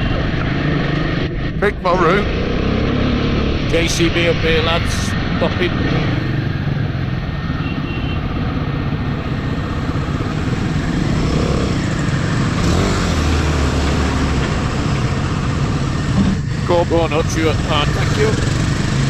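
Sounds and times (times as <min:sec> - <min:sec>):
deeper engine hum: 0:01.4 - 0:07.1, 0:09.4 - 0:19.0
motorcycle engines idling: 0:15.0 - 0:19.0.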